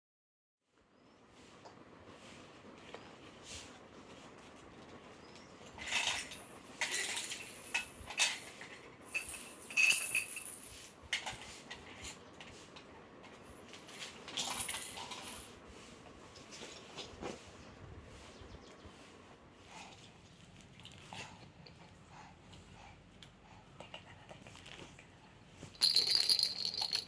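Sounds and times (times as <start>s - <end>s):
small hard objects clinking: 5.8s - 11.4s, 25.7s - 27.0s.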